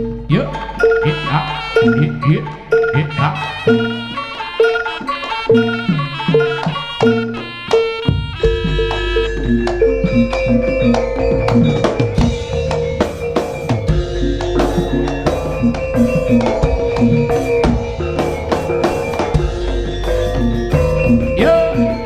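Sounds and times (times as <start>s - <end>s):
gamelan-style pitched notes: 0.0s - 22.0s
driving drum beat: 5.9s - 22.0s.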